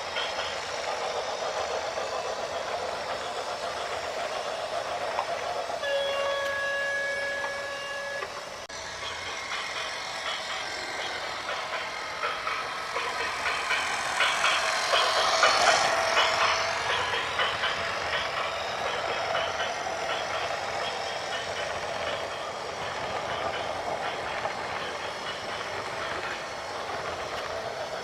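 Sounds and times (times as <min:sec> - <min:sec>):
vehicle horn: 0:05.8 - 0:08.2.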